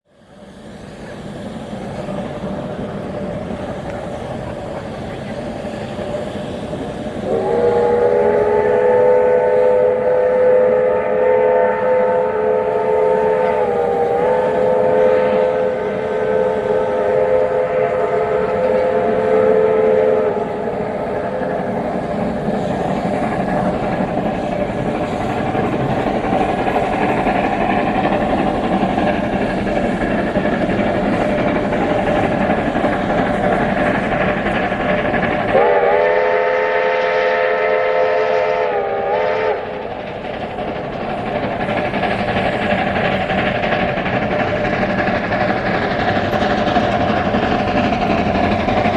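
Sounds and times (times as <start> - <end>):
steam locomotive running past: 0.1 - 48.9
train whistle: 7.2 - 21.4, 35.5 - 39.9.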